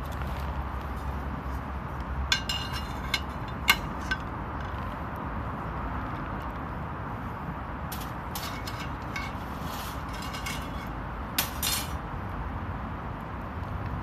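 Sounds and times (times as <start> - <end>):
metal camping gear clinking: 2.3 - 4.3, 8.0 - 12.0.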